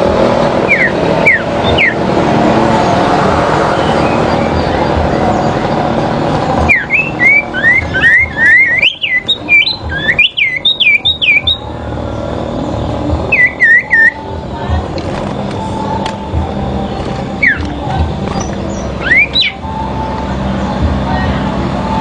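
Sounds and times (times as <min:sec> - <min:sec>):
songbird whistling: 0:00.6 - 0:02.0, 0:06.7 - 0:11.7, 0:13.2 - 0:14.3, 0:17.4 - 0:20.2.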